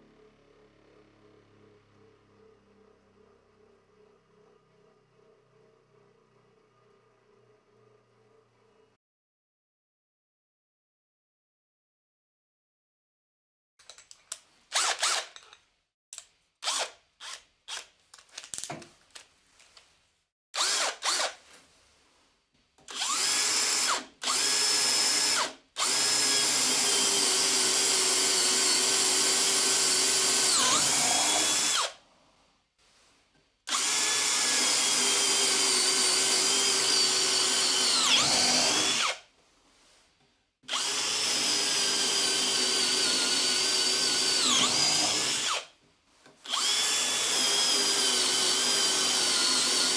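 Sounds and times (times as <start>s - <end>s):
power tool motor whining: 33.7s - 39.2s, 40.7s - 45.7s, 46.5s - 49.9s.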